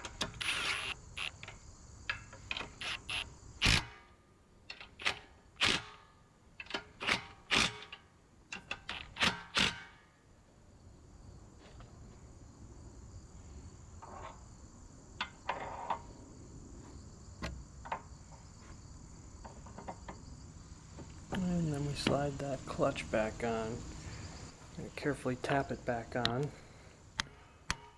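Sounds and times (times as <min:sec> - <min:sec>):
sharp clicks and knocks: 0:00.0 - 0:03.9, 0:04.7 - 0:05.8, 0:06.6 - 0:09.9, 0:17.4 - 0:18.4, 0:19.4 - 0:20.2, 0:27.2 - 0:27.9
insects chirring: 0:00.0 - 0:27.9.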